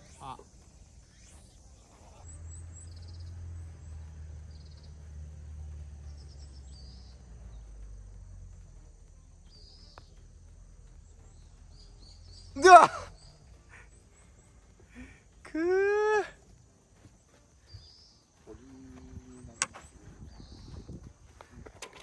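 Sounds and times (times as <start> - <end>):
small birds trilling: 0.0 - 22.0
low uneven rumble: 2.1 - 15.5.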